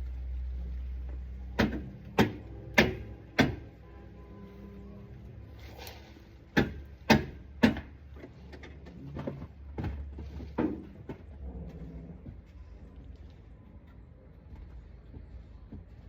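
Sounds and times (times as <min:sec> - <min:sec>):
low steady hum: 0:00.0 - 0:16.0
sharp knocks: 0:06.6 - 0:08.0.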